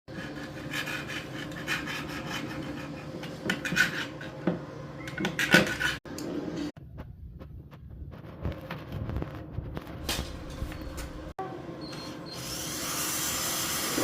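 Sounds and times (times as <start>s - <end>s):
rubbing and scraping: 0.1s - 4.4s, 5.3s - 6.1s.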